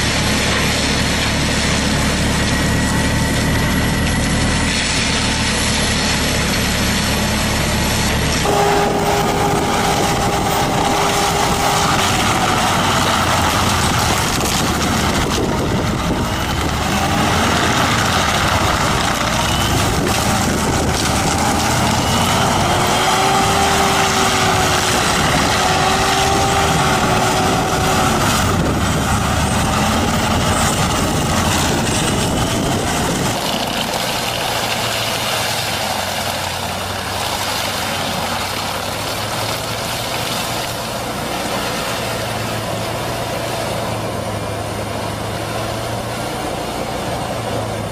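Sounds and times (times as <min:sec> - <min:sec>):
whining tones: 0:00.0 - 0:36.1
heavy machinery engine running: 0:00.0 - 0:47.9.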